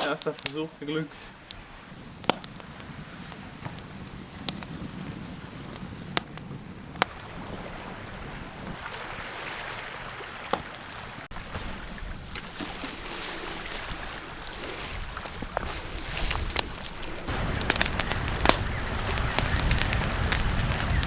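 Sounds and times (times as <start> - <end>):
wood fire crackling and popping: 0.0 - 7.8, 13.2 - 21.0
wind rumble on microphone: 1.4 - 21.0.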